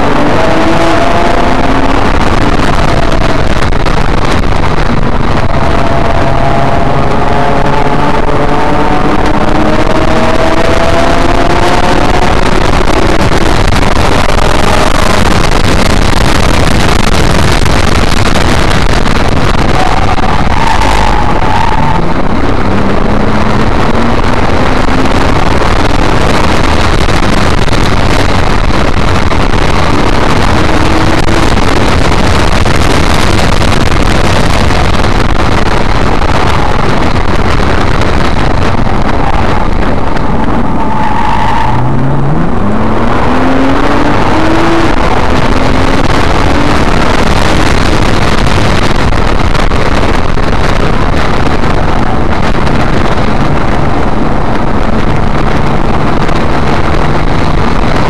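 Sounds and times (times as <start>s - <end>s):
car engine accelerating: 0.0s - 58.0s
road noise: 0.0s - 58.0s.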